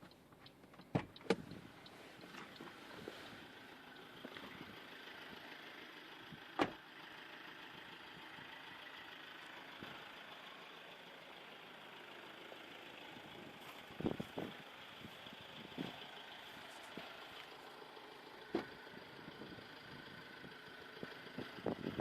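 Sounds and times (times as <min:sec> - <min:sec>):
faint car cabin hiss: 0:00.9 - 0:04.7.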